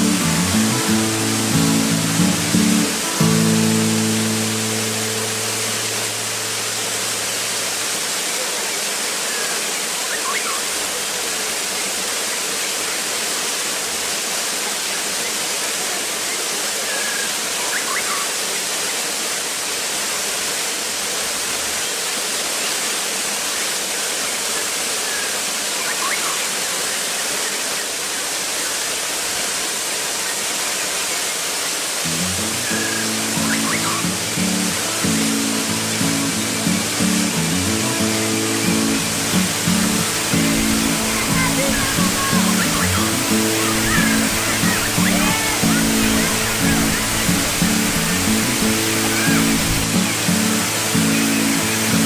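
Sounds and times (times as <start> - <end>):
ringing music note: 0.0 - 7.8
waterfall rushing: 0.0 - 52.0.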